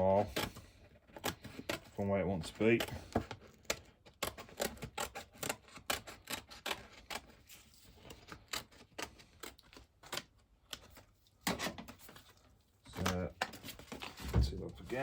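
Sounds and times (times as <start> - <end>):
scissors snipping cardboard: 0.1 - 12.0.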